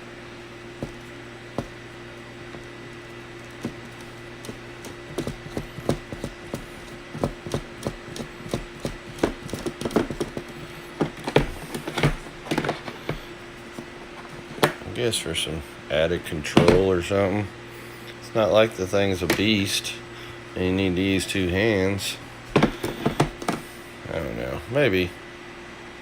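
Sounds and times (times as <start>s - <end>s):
steady low hum: 0.0s - 26.0s
clicks and knocks of handling plastic: 3.4s - 14.9s, 22.5s - 23.6s.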